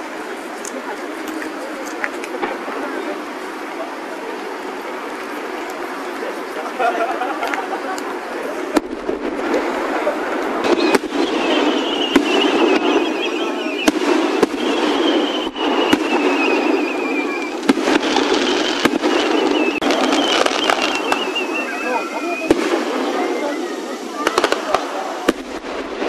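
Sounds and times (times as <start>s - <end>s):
firework bangs: 0.0s - 26.0s
firework crackle: 0.0s - 26.0s
high wavering whistle: 10.6s - 22.5s.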